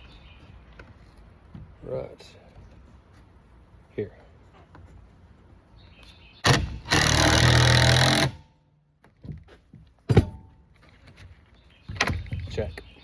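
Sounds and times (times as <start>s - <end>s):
power drill driving screw into wood: 6.4s - 8.5s.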